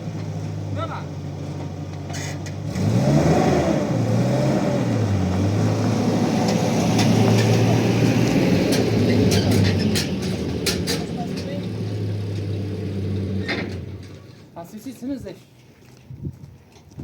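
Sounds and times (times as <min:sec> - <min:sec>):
car engine revving: 0:02.2 - 0:14.2.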